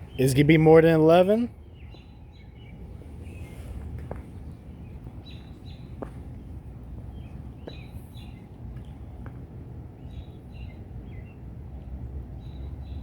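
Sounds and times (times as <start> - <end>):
birds chirping: 0.0 - 11.6
low background rumble: 1.5 - 13.0.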